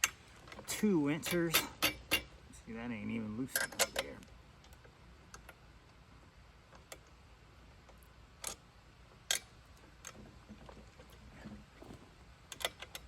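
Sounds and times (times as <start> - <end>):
metal clicks and knocks: 1.2 - 2.3, 3.5 - 4.8, 12.5 - 13.0.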